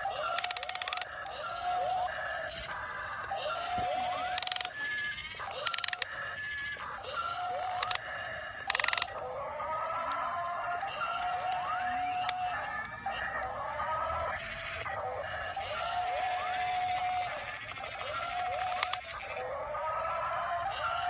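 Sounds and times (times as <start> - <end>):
small electric motors whining: 0.0 - 21.0.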